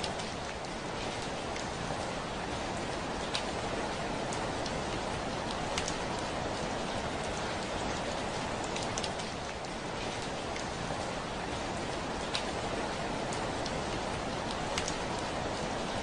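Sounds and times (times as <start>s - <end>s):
raindrops ticking on window: 3.3s - 6.7s, 12.3s - 15.8s.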